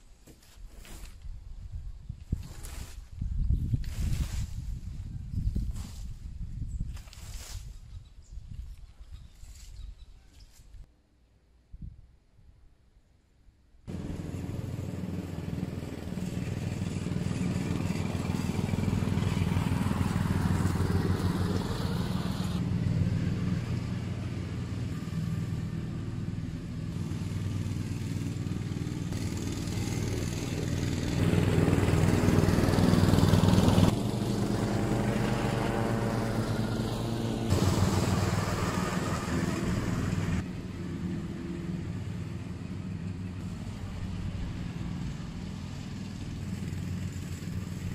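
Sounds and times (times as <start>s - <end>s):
lawn mower engine cutting grass: 13.9s - 47.9s.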